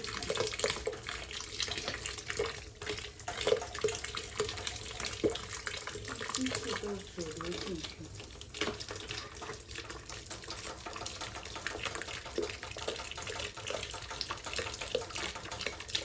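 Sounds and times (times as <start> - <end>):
water running from valve: 0.0 - 16.0.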